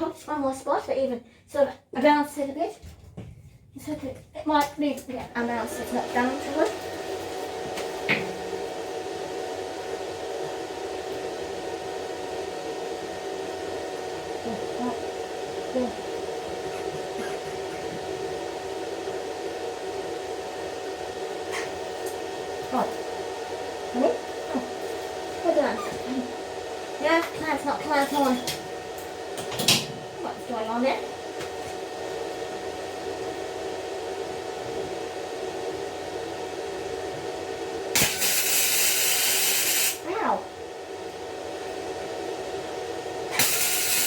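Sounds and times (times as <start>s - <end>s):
motor hum with hiss: 13.1s - 19.7s, 34.2s - 44.0s.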